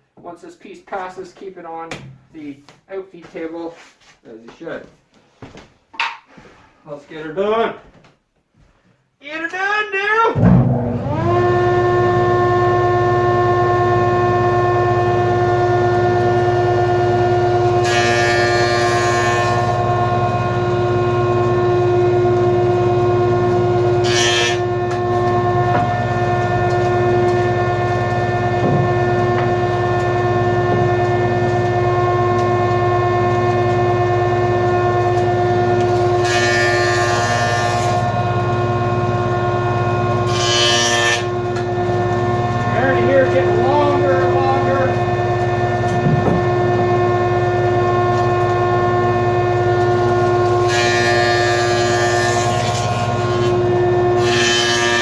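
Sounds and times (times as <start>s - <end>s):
jointer motor hum: 10.4s - 55.0s
hissing wood cutting noise: 11.0s - 55.0s.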